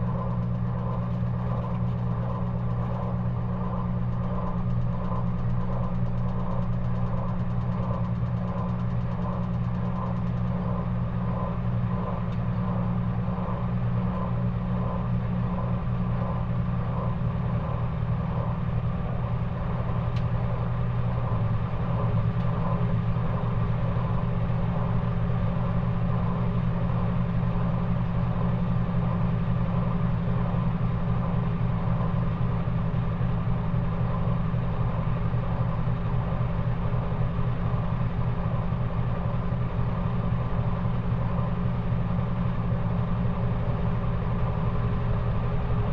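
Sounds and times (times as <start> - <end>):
washing machine motor hum: 0.0 - 45.9.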